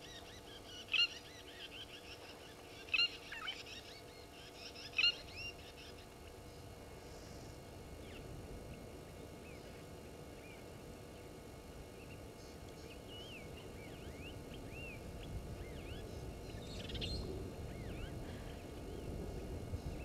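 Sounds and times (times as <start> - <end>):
low background rumble: 0.0 - 20.0
birds whistled chirps: 12.8 - 19.2.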